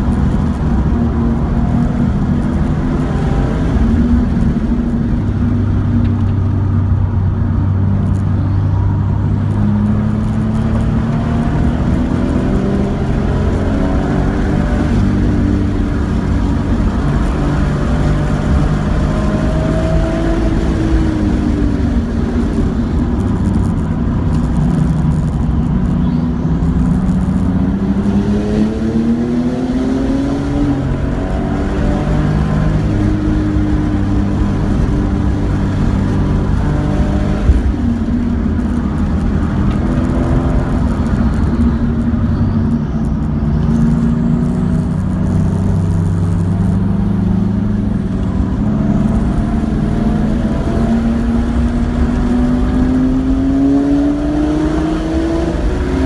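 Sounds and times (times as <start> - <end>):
car engine accelerating and braking: 0.0 - 56.0
wind noise: 0.0 - 56.0.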